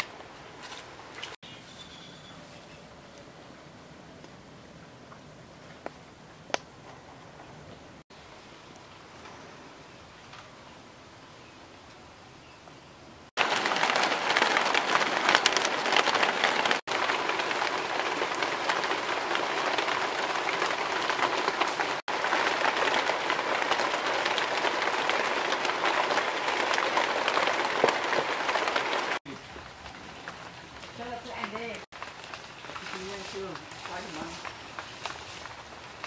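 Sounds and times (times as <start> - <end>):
rain falling on puddles: 13.4 - 36.0.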